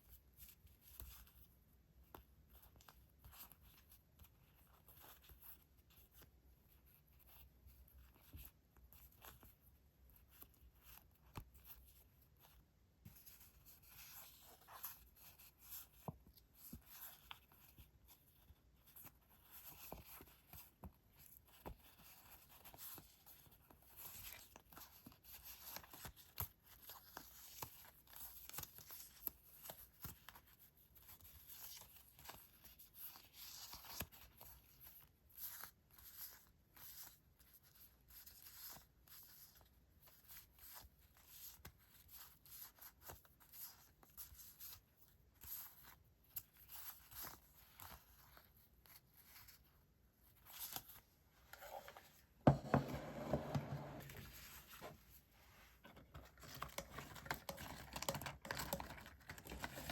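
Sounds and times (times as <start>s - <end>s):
paper rustling and crinkling: 46.6s - 59.9s
item knocking on desk: 52.4s - 54.0s.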